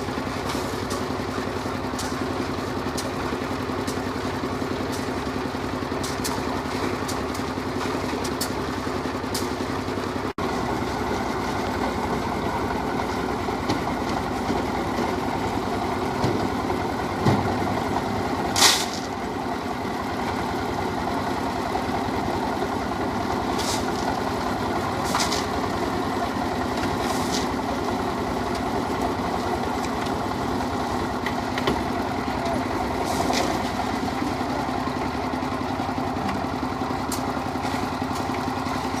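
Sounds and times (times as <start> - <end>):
machinery engine running: 0.0 - 39.0.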